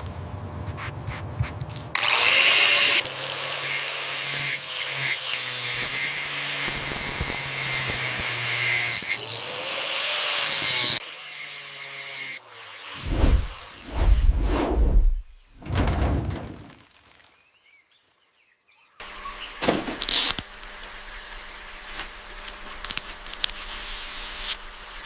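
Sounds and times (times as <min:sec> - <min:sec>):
short thump: 0:13.1 - 0:16.7.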